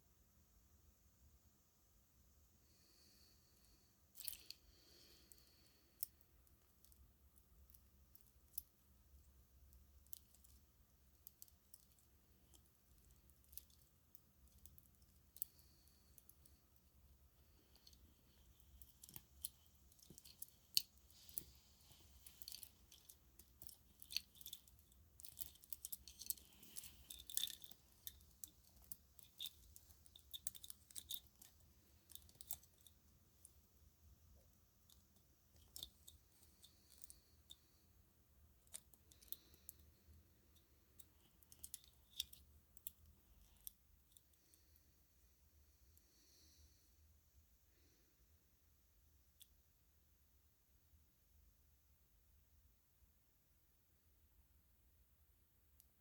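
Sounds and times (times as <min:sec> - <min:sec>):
string lights clicking and rubbing: 0:09.7 - 0:33.6.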